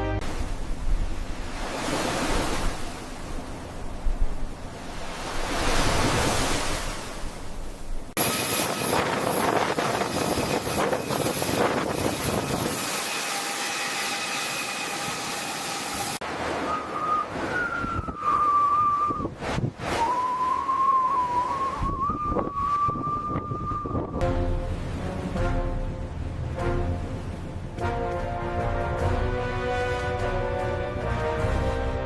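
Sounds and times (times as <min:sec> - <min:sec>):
wind and sea noise: 0:00.0 - 0:32.0
wavering whistle-like tone: 0:08.3 - 0:24.2.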